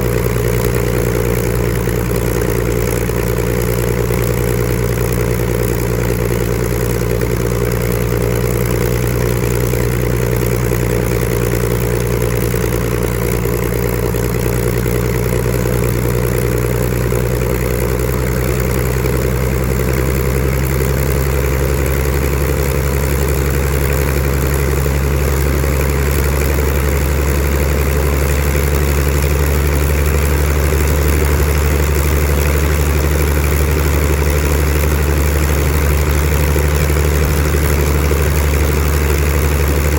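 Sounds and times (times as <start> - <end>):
aircraft piston engine running: 0.0 - 39.9.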